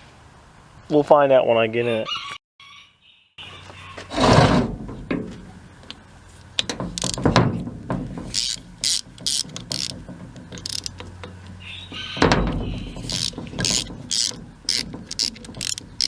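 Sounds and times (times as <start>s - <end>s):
socket ratchet clicking: 8.3s - 11.4s, 13.0s - 16.0s.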